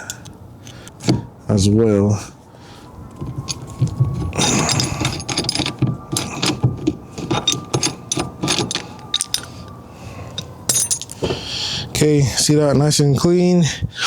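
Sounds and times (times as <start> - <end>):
metallic clicking and rattling: 3.1 - 9.7, 10.3 - 11.4.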